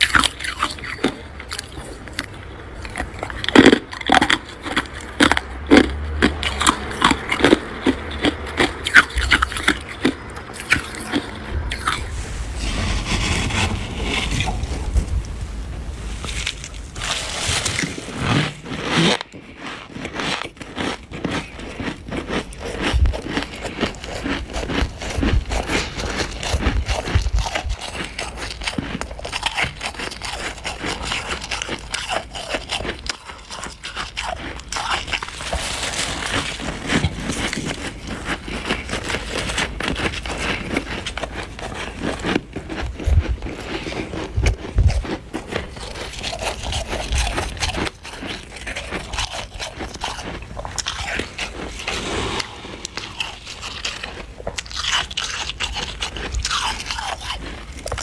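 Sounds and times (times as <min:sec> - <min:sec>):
frost being scraped and crunched: 0:10.5 - 0:20.9, 0:34.6 - 0:58.0
dull low thumps: 0:11.9 - 0:17.1.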